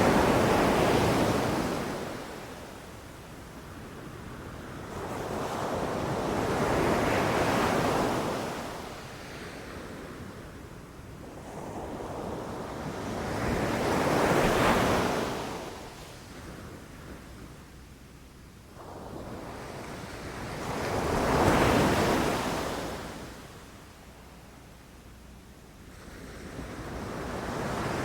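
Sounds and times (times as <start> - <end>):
ocean waves breaking on beach: 0.0 - 3.0
wind: 0.0 - 28.0.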